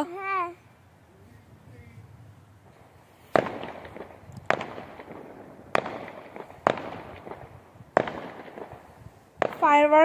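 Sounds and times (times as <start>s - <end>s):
fireworks bangs and crackling: 2.6s - 10.0s.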